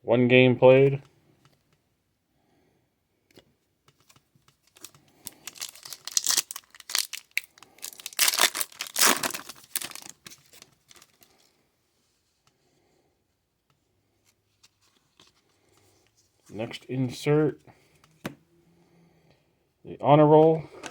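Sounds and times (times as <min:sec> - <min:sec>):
plastic and cards crinkling: 0:03.9 - 0:11.5.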